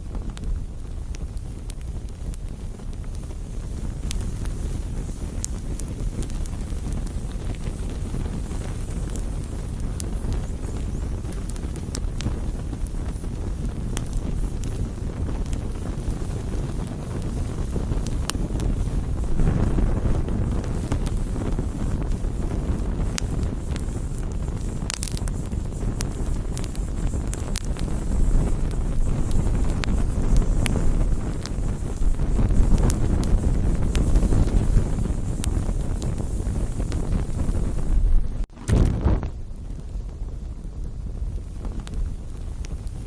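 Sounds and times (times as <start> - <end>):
burning wood crackling and popping: 0.0 - 43.0
campfire flames rumbling: 0.0 - 43.0.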